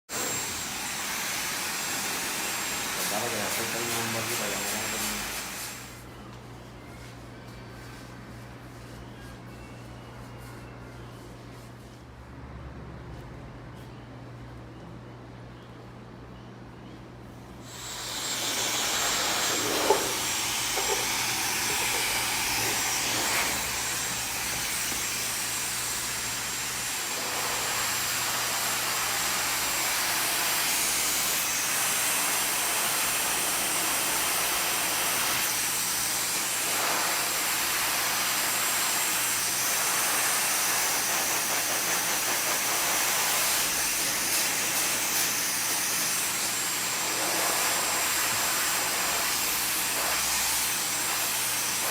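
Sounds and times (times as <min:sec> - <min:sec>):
hair dryer blowing: 0:00.0 - 0:06.1, 0:17.6 - 0:51.9.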